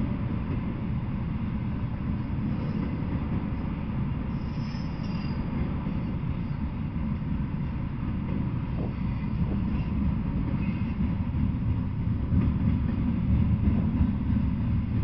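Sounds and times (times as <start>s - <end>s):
freight train rumbling: 0.0s - 15.0s
faint high squeal: 4.3s - 6.6s.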